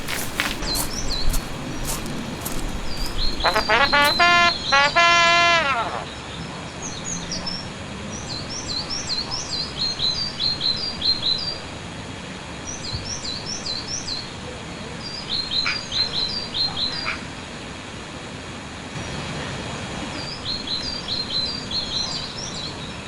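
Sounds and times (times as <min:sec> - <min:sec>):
small birds chirping: 0:00.0 - 0:04.8
outdoor background hiss: 0:00.0 - 0:23.0.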